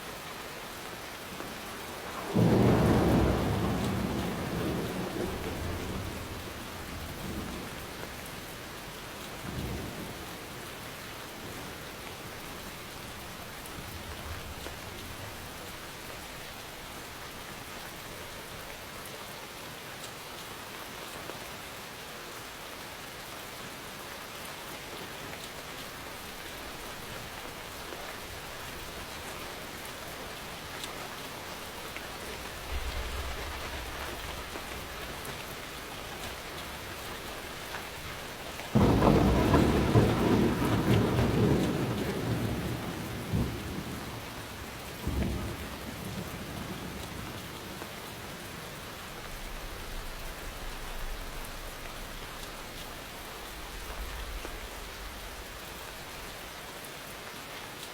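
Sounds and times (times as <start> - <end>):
low thunder rumbles: 1.8 - 8.4, 31.3 - 52.8
heavy rain hissing: 25.5 - 57.8.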